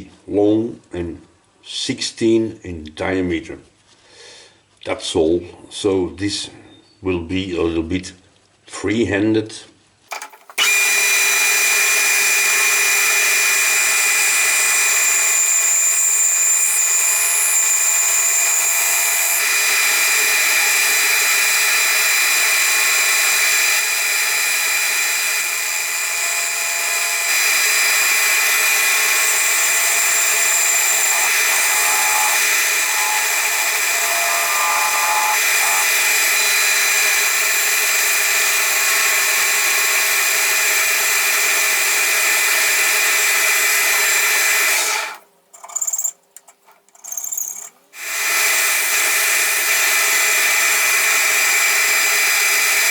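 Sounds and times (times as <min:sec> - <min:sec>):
lathe machine whine: 0:10.1 - 0:46.1, 0:47.0 - 0:52.9
tool cutting spinning wood: 0:10.1 - 0:46.1, 0:47.0 - 0:52.9.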